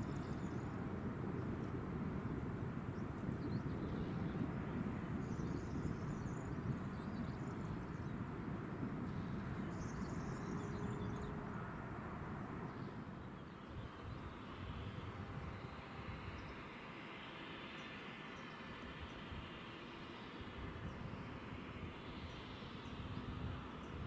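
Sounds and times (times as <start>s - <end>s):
steady low rumble: 0.0s - 17.6s.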